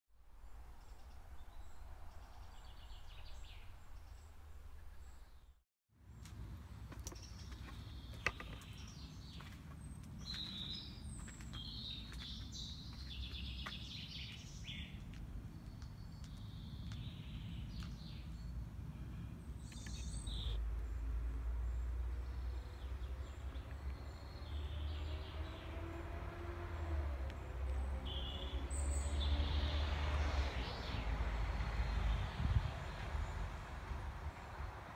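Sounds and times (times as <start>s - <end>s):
small birds chirping: 0.4s - 26.2s.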